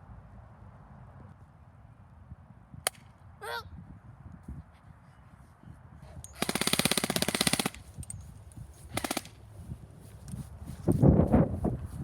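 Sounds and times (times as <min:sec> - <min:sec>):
airsoft gun firing bursts: 0:06.4 - 0:08.0, 0:08.9 - 0:09.4.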